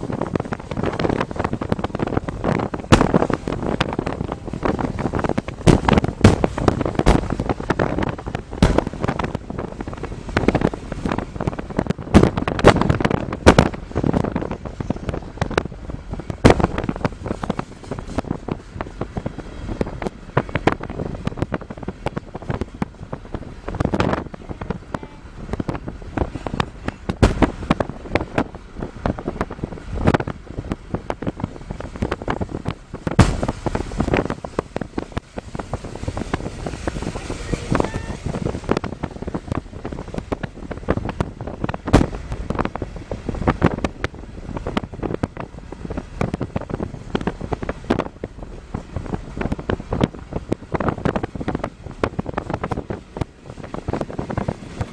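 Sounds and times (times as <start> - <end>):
wind buffeting microphone: 0.0 - 54.9
sharp thumps: 2.5 - 14.4, 16.3 - 17.2, 27.0 - 28.4, 33.1 - 35.0, 41.9 - 42.8.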